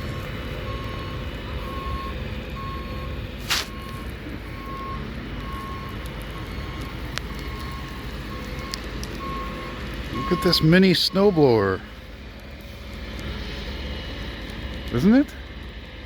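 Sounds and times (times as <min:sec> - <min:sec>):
reversing alarm beeping: 0:00.0 - 0:11.7
low engine rumble: 0:00.0 - 0:16.0
short sharp hiss: 0:03.4 - 0:03.8.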